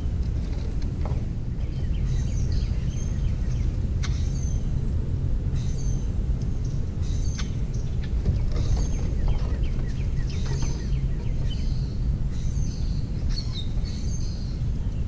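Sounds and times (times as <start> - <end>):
small birds chirping: 1.2 - 4.8, 5.4 - 15.0.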